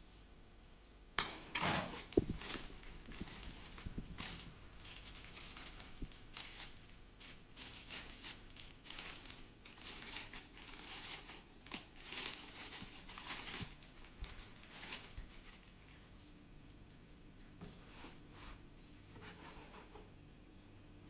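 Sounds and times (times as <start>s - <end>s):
crinkling and rustling: 1.2s - 17.0s.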